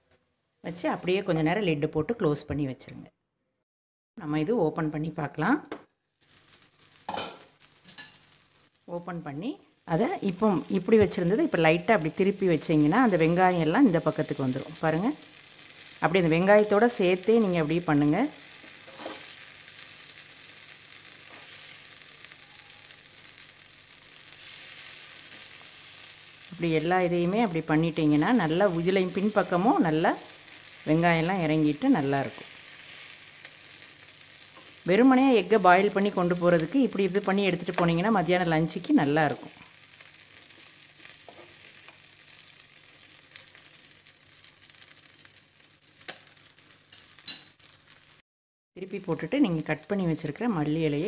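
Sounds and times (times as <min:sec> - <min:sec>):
food sizzling in a frying pan: 0:05.9 - 0:48.2, 0:48.8 - 0:51.0
steel spoon turning food: 0:18.6 - 0:26.5.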